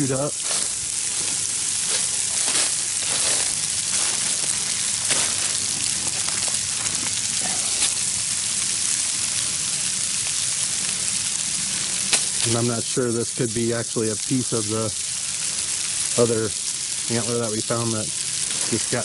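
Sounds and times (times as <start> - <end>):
faint crackles: 0.0 - 19.0
sleet and rain falling: 0.0 - 19.0.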